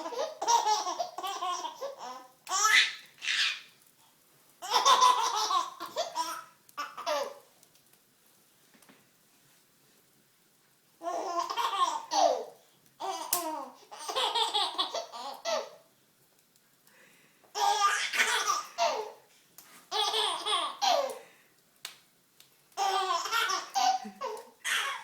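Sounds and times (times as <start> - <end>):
baby giggling: 4.6 - 7.4, 14.0 - 15.7, 17.6 - 19.2, 19.9 - 21.2, 22.8 - 25.0.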